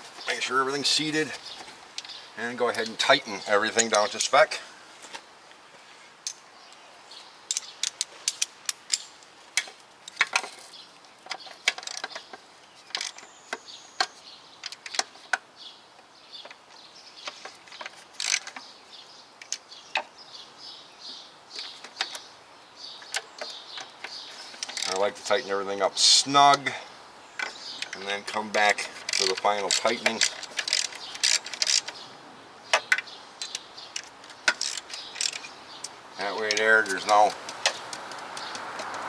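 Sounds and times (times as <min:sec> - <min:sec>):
ratchet wrench clicking: 0:29.1 - 0:31.9, 0:33.4 - 0:35.5.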